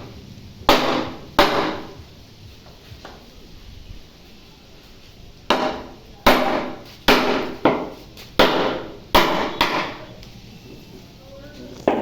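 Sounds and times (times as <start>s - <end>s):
ringing hammer strikes: 5.5s - 10.2s.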